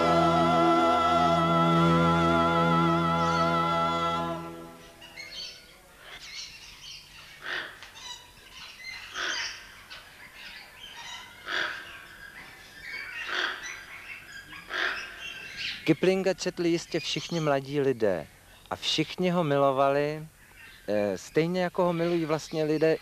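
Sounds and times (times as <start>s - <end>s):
held music chord: 0.0s - 5.2s
birds calling outdoors: 2.6s - 23.0s.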